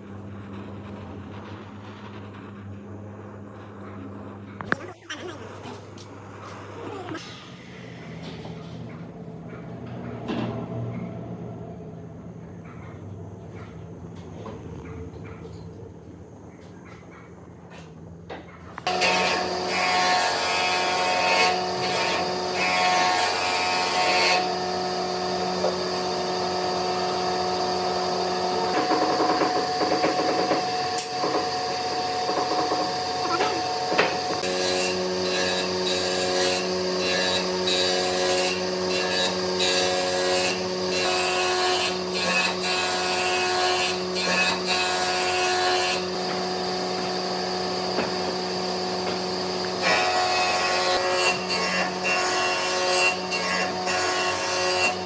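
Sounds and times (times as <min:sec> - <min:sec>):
rough wood cutting noise: 0:18.8 - 0:55.0.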